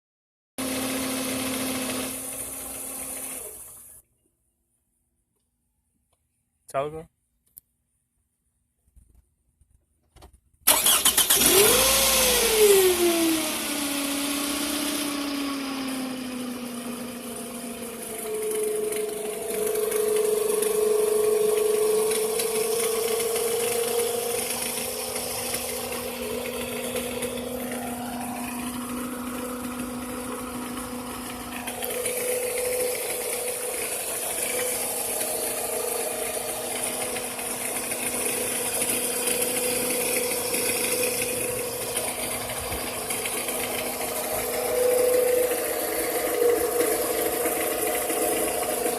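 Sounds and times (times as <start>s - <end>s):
car engine running: 10.7s - 48.9s
steady whining tone: 11.0s - 48.9s.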